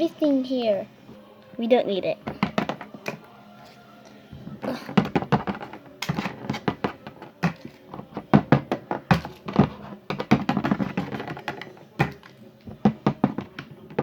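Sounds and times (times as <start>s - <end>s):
plastic toys tapping on hard surface: 2.3s - 3.2s, 4.9s - 14.0s.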